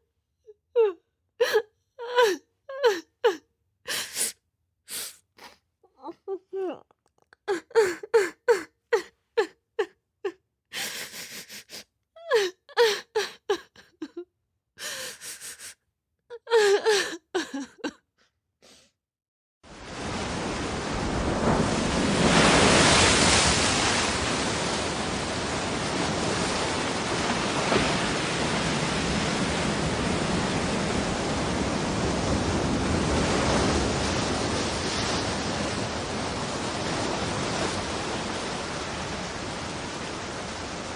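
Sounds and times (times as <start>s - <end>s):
person sobbing: 0.8s - 4.3s, 4.9s - 9.9s, 10.8s - 14.2s, 14.8s - 18.0s
gasping breaths: 0.8s - 5.6s, 10.8s - 14.2s, 14.8s - 15.8s, 16.4s - 17.9s.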